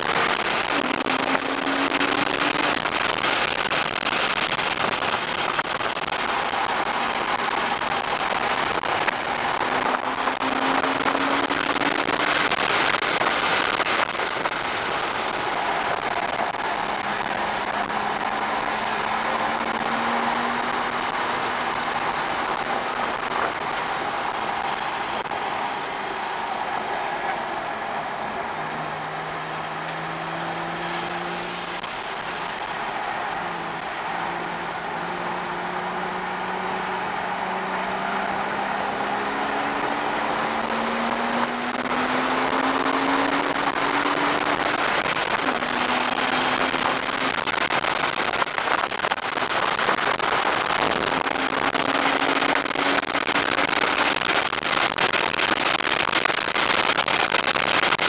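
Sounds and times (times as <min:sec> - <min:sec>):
car engine under hard driving: 0:00.0 - 0:58.0
wind noise: 0:28.2 - 0:58.0.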